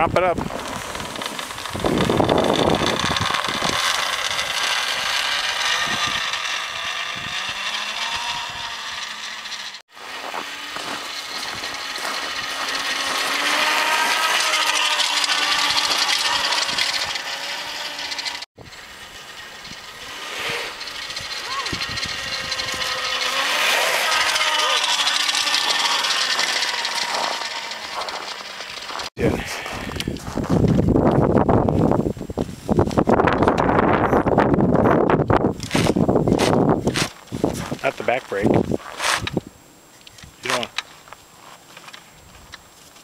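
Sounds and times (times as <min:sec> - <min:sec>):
road noise: 0:00.0 - 0:43.0
electric motor whine: 0:00.4 - 0:31.0
rattly drivetrain: 0:00.4 - 0:31.0, 0:32.9 - 0:39.5.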